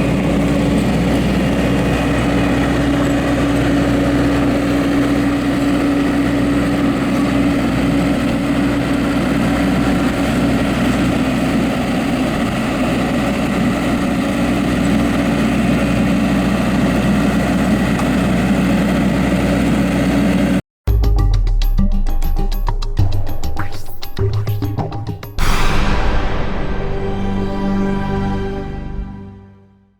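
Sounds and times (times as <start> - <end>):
diesel engine running: 0.0 - 20.6.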